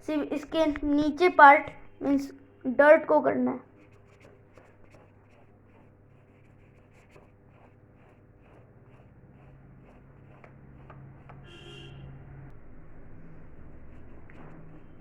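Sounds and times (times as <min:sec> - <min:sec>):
steady low hum: 0:00.0 - 0:15.0
colouring tool scratching paper: 0:03.7 - 0:11.5, 0:13.4 - 0:15.0.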